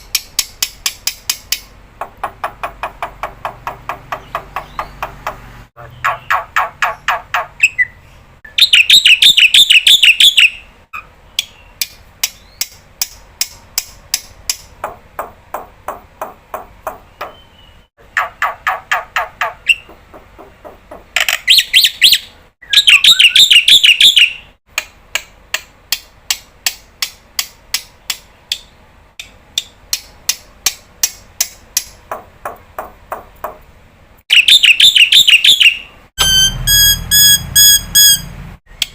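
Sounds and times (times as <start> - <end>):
bird song sharp repeated notes: 0.0 - 14.6, 16.8 - 20.0, 21.2 - 24.6, 34.3 - 38.5
bird harsh chattering: 5.8 - 11.8, 34.3 - 35.9.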